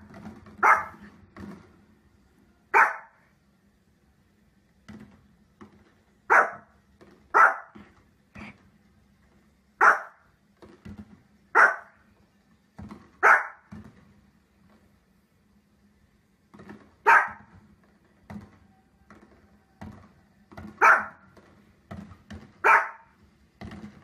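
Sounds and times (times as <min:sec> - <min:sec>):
dog barking: 0:00.6 - 0:01.1, 0:02.7 - 0:03.2, 0:06.3 - 0:06.7, 0:07.3 - 0:07.8, 0:09.8 - 0:10.2, 0:11.5 - 0:12.0, 0:13.2 - 0:13.7, 0:17.0 - 0:17.5, 0:20.8 - 0:21.2, 0:22.6 - 0:23.1.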